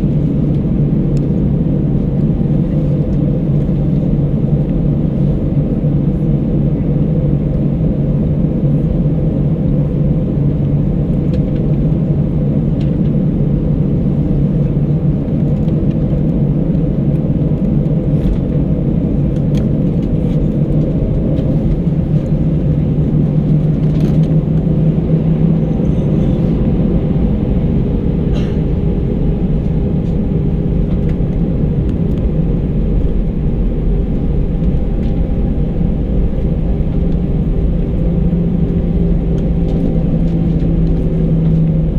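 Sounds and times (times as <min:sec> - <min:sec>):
airliner cabin engine rumble: 0:00.0 - 0:41.9.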